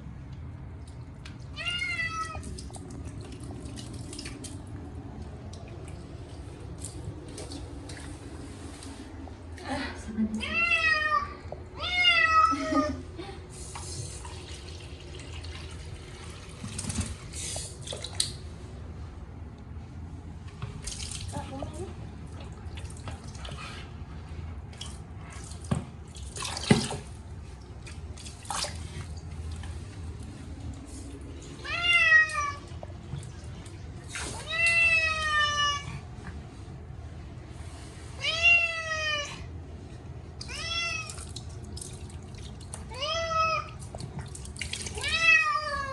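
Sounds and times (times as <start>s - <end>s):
cat meowing loudly: 1.5s - 2.4s, 31.6s - 32.6s
water running and splashing: 2.2s - 8.4s, 13.8s - 18.5s, 24.7s - 30.8s, 40.9s - 45.5s.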